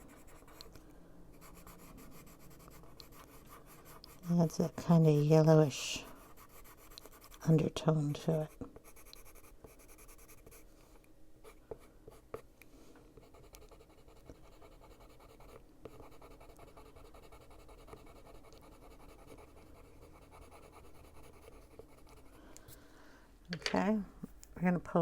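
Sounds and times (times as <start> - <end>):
pencil scratching on paper: 0.0 - 0.7, 1.3 - 10.6, 13.2 - 22.4.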